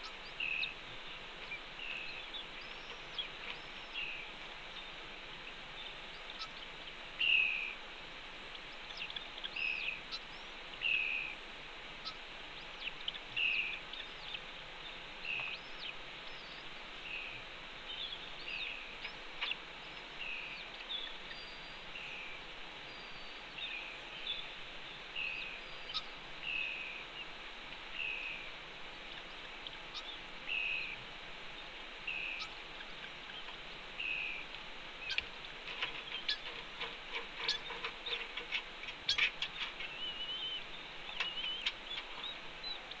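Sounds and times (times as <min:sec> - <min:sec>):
bird chirping: 0:00.0 - 0:07.8, 0:08.5 - 0:11.4, 0:12.0 - 0:43.0
steady hiss: 0:00.0 - 0:43.0.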